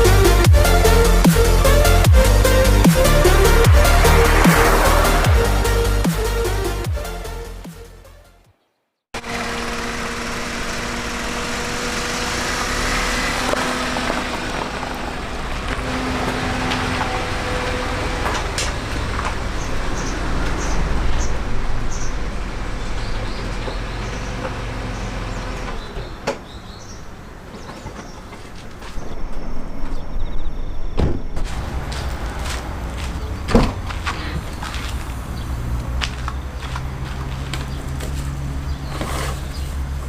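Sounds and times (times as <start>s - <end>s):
car engine rumble: 0.0s - 8.2s, 9.2s - 40.0s
road noise: 0.0s - 40.0s.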